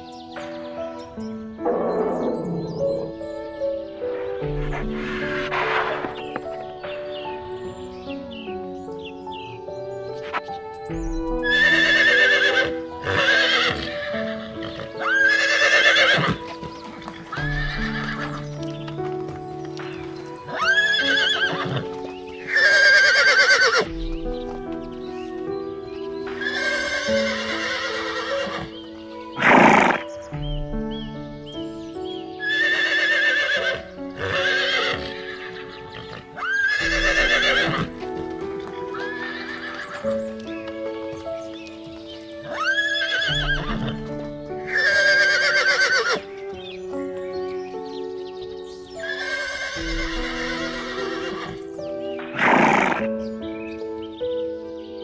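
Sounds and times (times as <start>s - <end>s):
calm background music: 0.0s - 55.0s
horse whinnying: 11.5s - 16.6s, 17.5s - 18.4s, 20.5s - 23.9s, 26.3s - 28.8s, 29.4s - 30.1s, 32.4s - 37.9s, 39.0s - 40.0s, 42.5s - 44.0s, 44.7s - 46.2s, 49.0s - 51.6s, 52.3s - 53.1s.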